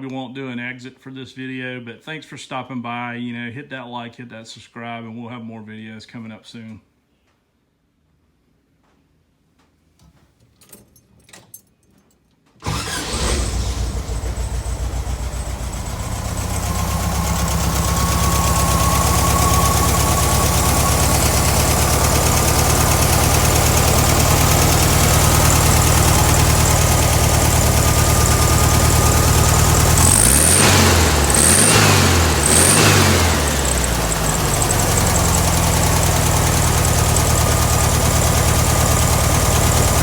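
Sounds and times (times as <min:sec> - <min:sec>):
car engine idling and revving: 0:12.6 - 0:40.0.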